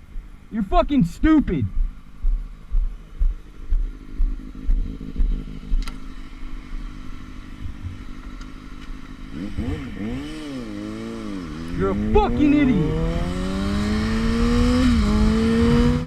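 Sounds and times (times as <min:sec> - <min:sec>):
motorcycle engine idling: 0:00.0 - 0:12.8
low thumps: 0:01.2 - 0:06.9, 0:07.6 - 0:08.3.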